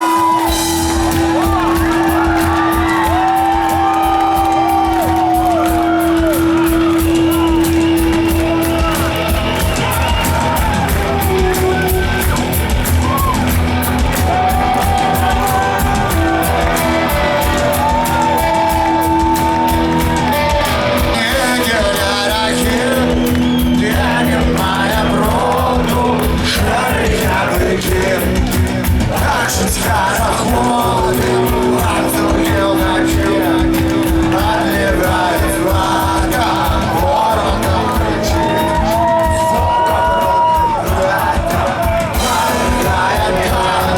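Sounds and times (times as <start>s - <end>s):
drum beat: 0.0s - 43.9s
rock band playing live: 0.0s - 43.9s
people singing: 14.6s - 43.9s.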